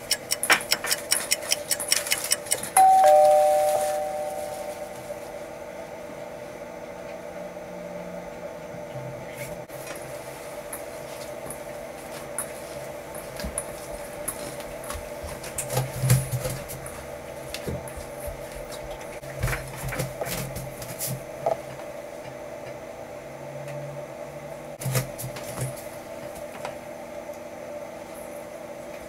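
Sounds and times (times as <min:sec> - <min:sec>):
steady hum: 0:00.0 - 0:19.3.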